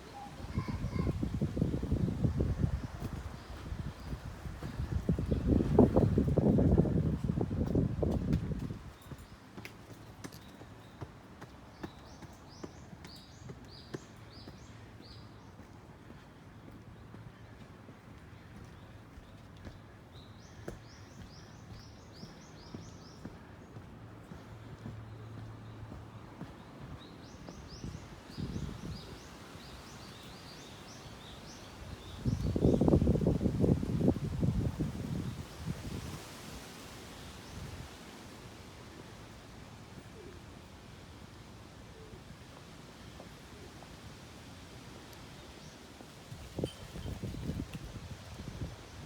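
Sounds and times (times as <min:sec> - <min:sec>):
wind buffeting microphone: 0:00.0 - 0:09.3, 0:26.6 - 0:30.2, 0:30.8 - 0:38.0, 0:46.3 - 0:49.0
faint outdoor ambience: 0:00.0 - 0:49.0
footsteps on pavement: 0:01.9 - 0:33.1.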